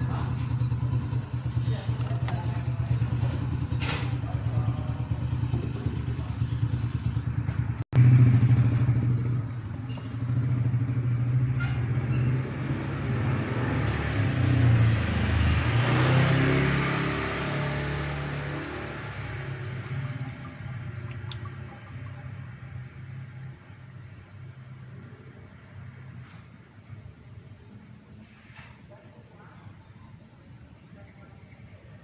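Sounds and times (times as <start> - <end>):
diesel engine idling: 0.0 - 7.8, 17.5 - 24.3.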